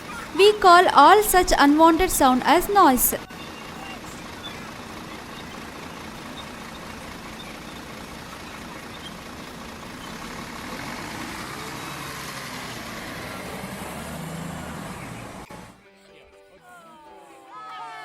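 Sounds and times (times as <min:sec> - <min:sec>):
road traffic roar: 0:03.8 - 0:15.7.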